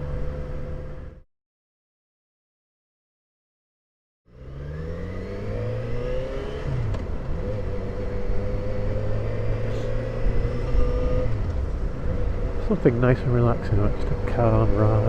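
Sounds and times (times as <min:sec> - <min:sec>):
motorcycle engine accelerating: 0:04.3 - 0:15.0.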